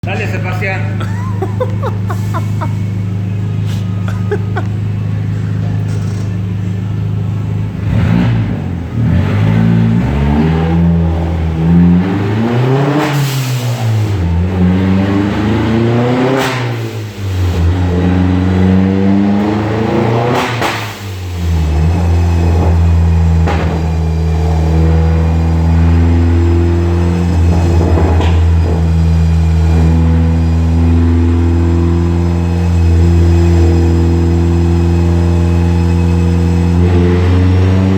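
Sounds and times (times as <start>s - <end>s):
car engine revving: 0.3s - 37.9s.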